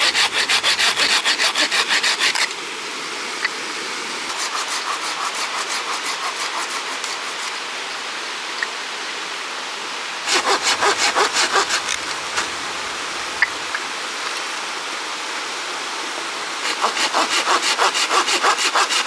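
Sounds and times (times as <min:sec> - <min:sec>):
hand saw cutting wood: 0:00.0 - 0:02.6, 0:04.3 - 0:07.6, 0:10.3 - 0:13.8, 0:16.6 - 0:19.0.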